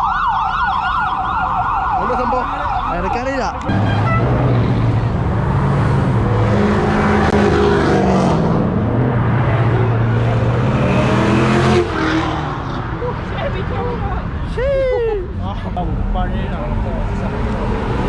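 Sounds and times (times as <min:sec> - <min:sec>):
sports car engine driving by: 0:03.7 - 0:13.7.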